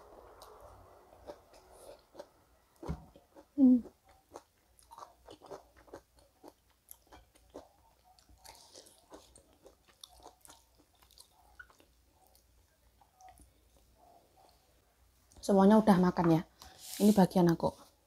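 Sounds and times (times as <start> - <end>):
close-up chewing with mouth clicks: 1.2 - 14.0.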